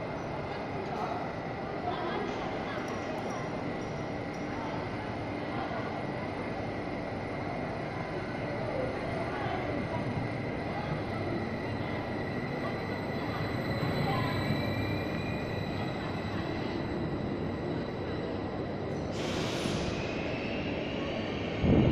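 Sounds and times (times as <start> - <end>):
train rumbling past: 8.4 - 21.9.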